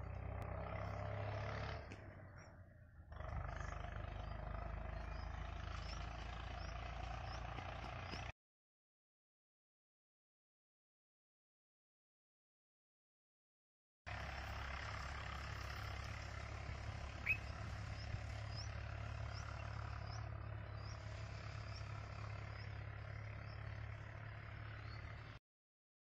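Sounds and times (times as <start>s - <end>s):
bird chirping: 3.5s - 8.3s, 17.1s - 23.9s.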